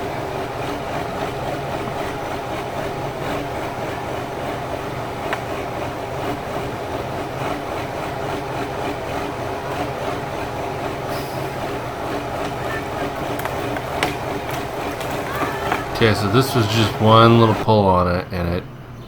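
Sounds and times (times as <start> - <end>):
truck engine running under load: 0.0 - 19.0.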